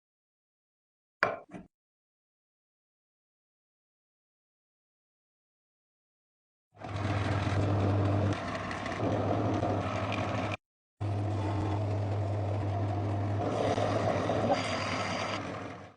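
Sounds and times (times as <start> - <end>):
motor humming: 6.8 - 15.7.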